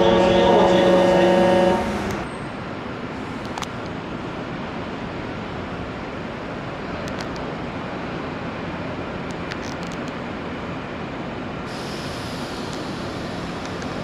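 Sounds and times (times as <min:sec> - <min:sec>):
electric train rumbling: 0:00.0 - 0:14.0
faint clicks: 0:12.7 - 0:14.0.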